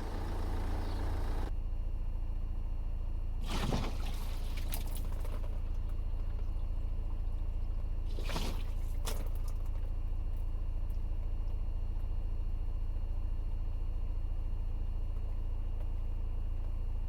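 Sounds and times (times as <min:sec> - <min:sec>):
low hum: 0:00.0 - 0:01.5.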